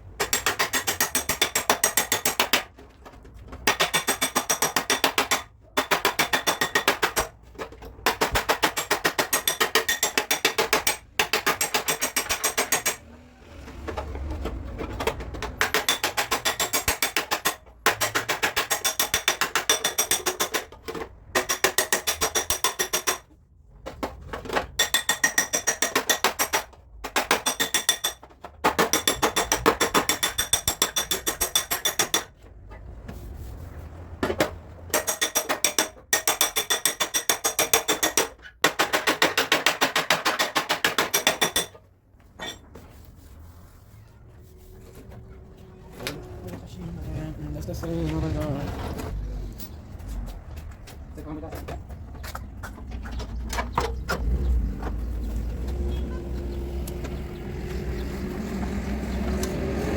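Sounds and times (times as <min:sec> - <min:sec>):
hammer tapping on sheet metal: 0:03.6 - 0:07.3, 0:08.0 - 0:13.0, 0:15.6 - 0:20.7, 0:21.3 - 0:23.3, 0:34.3 - 0:41.8.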